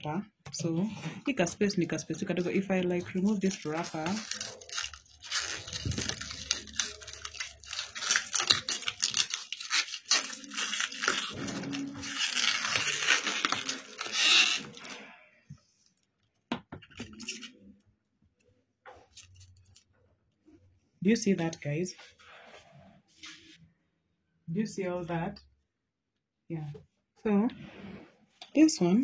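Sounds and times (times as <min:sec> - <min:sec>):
wrapper tearing and crinkling: 0:03.0 - 0:15.1.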